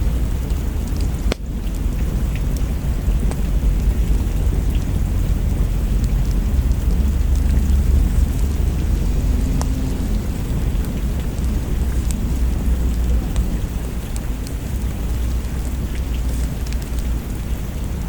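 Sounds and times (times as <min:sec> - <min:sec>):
low thunder rumble: 0:00.0 - 0:18.0
steady rain: 0:00.0 - 0:18.0
faint clicks: 0:05.9 - 0:17.2.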